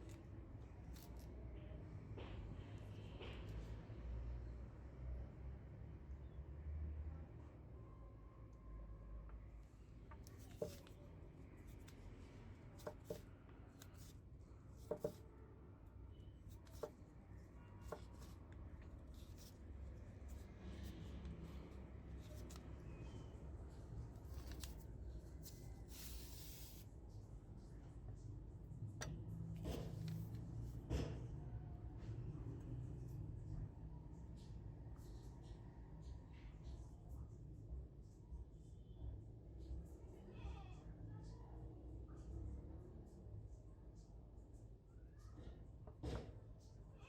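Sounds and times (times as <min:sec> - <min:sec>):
light rubbing and scraping: 0:10.1 - 0:11.0, 0:11.6 - 0:15.3, 0:16.5 - 0:23.2, 0:24.2 - 0:26.8.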